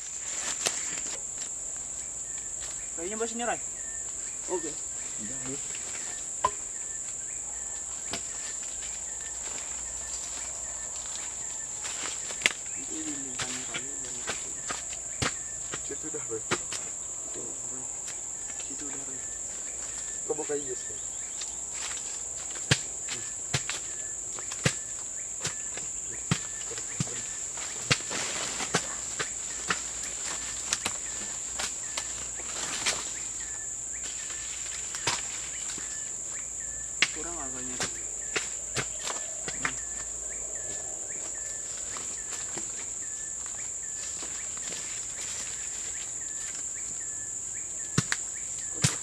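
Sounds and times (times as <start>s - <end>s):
forest insects droning: 0.0s - 49.0s
sharp knocks: 6.4s - 6.6s.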